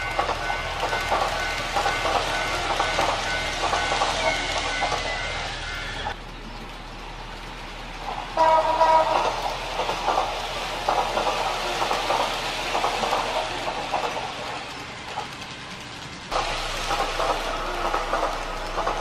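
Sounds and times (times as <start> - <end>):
train passing with rail clatter: 0.0 - 19.0
train horn: 8.3 - 9.4.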